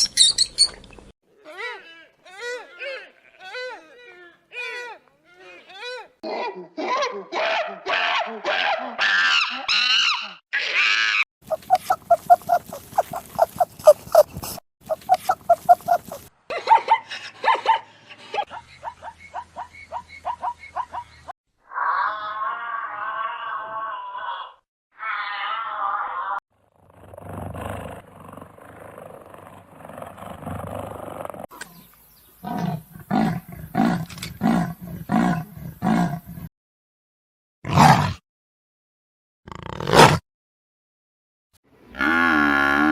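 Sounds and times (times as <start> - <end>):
animal wavering pitched cries: 9.0 - 14.3, 14.9 - 16.2, 21.7 - 26.4
animal short grunting calls: 11.5 - 16.3
large animal growling: 26.7 - 31.5.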